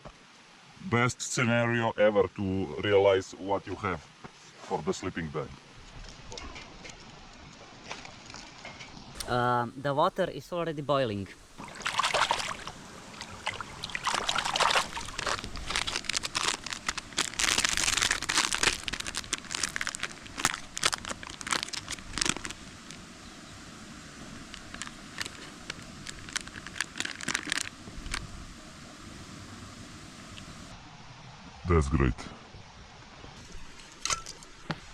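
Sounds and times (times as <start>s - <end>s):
crinkling and rustling: 11.6s - 23.0s, 24.4s - 28.3s
sharp clicks and crackles: 14.8s - 23.0s, 24.4s - 28.3s.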